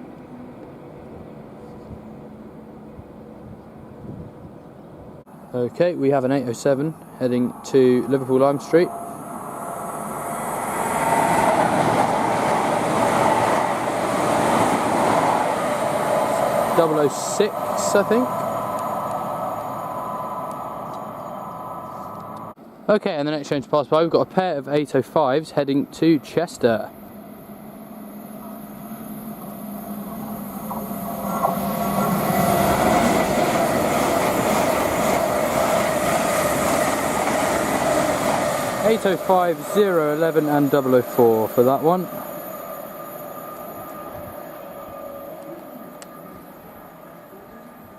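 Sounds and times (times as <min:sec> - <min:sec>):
train passing on rails: 0:00.0 - 0:47.9.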